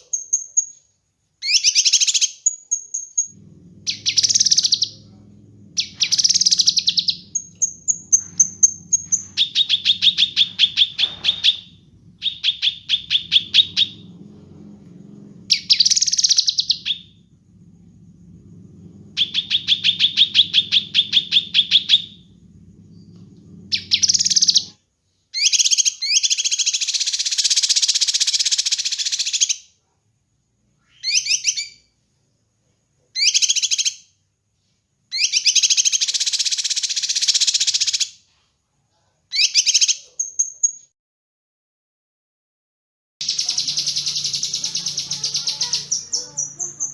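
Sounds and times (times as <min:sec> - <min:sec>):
songbird chirping: 0:00.0 - 0:24.8, 0:30.6 - 0:32.1, 0:43.2 - 0:46.9
low background hum: 0:00.0 - 0:27.3, 0:43.2 - 0:46.9
harsh bird chatter: 0:03.3 - 0:14.1, 0:19.2 - 0:22.2, 0:43.2 - 0:46.9
high bird whistle: 0:05.8 - 0:14.0.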